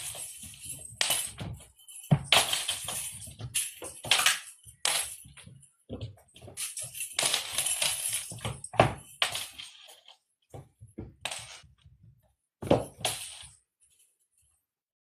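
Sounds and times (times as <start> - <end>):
cat toy clattering and rattling: 0.0 - 11.7.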